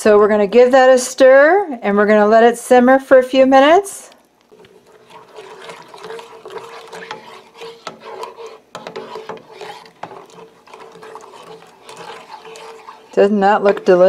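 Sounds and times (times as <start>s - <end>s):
liquid swishing: 4.5s - 14.0s
spoon scraping a saucepan: 4.5s - 14.0s.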